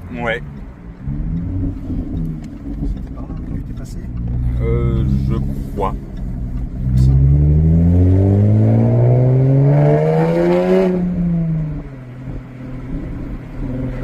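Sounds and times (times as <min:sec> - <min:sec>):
car engine accelerating hard: 0:00.0 - 0:14.0.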